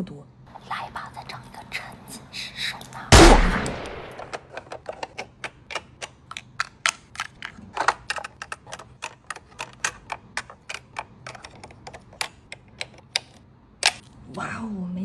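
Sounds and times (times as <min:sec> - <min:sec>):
small plastic pieces clicking: 0:04.0 - 0:14.1.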